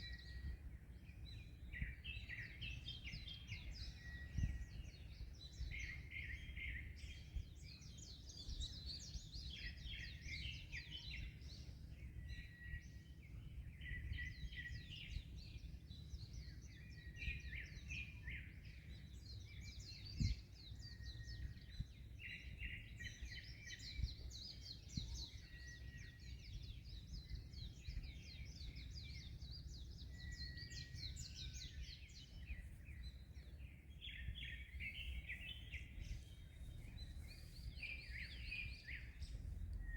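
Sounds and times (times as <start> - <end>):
small birds chirping: 0.0 - 39.9
wind: 0.0 - 39.9.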